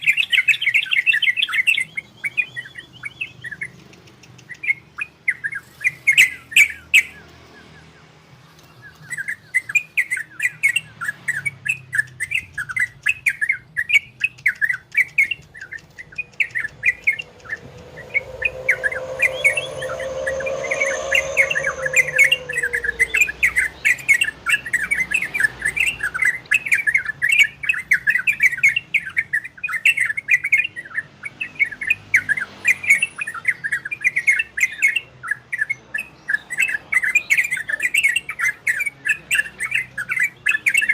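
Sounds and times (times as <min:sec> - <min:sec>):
bird singing chirping notes: 0:08.6 - 0:30.8
low drawn-out sound: 0:16.3 - 0:23.9.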